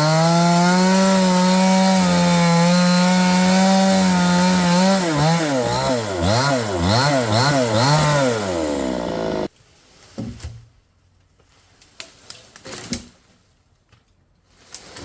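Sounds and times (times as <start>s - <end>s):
small engine revving: 0.0s - 9.5s.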